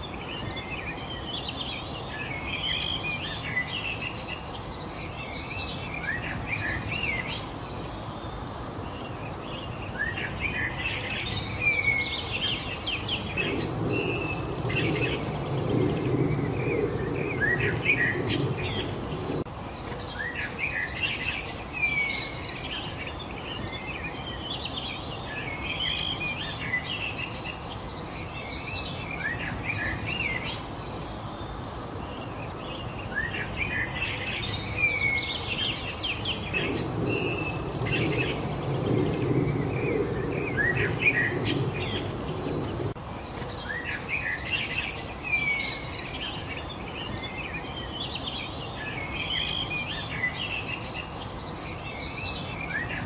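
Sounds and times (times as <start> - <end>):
background hiss: 0.0 - 53.0
songbirds chirping: 0.0 - 53.0
low rumble: 13.0 - 19.5, 36.2 - 43.0.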